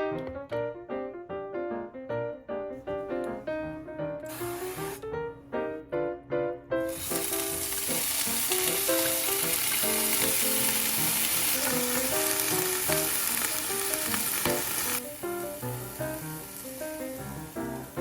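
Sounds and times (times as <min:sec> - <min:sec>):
food sizzling in a pan: 0:04.3 - 0:05.0, 0:06.9 - 0:18.0.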